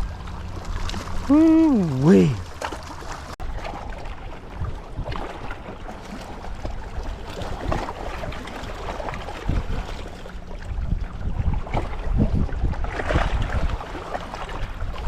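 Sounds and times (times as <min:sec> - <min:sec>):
wind buffeting microphone: 0:06.5 - 0:15.0.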